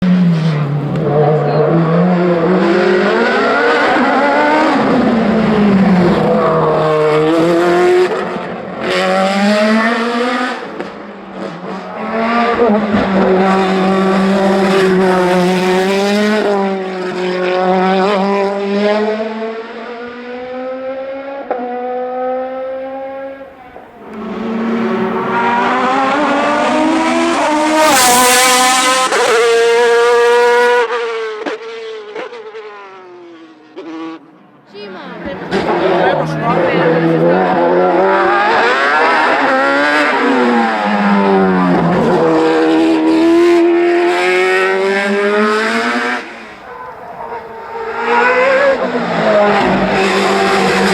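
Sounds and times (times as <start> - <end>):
racing car engines at full throttle: 0.0 - 50.9.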